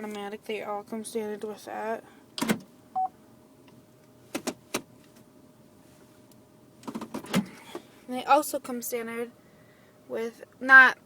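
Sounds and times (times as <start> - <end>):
faint steady hum: 0.0 - 11.0
clicks and knocks of car controls: 2.4 - 2.7, 4.3 - 4.9, 6.8 - 7.5.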